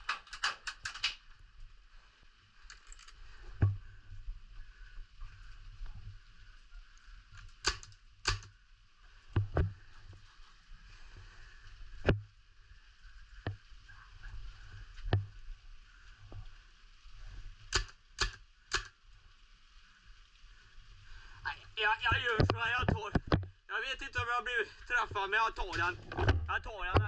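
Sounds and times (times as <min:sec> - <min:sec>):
sharp clicks and knocks: 0:00.0 - 0:01.3, 0:07.4 - 0:08.5, 0:17.7 - 0:18.9, 0:25.7 - 0:27.0
faint steady hiss: 0:00.0 - 0:27.0.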